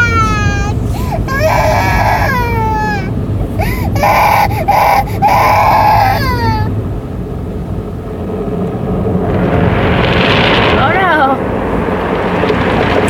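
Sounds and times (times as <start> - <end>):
child crying: 0.0 - 6.7
car wash rumble: 0.0 - 13.0.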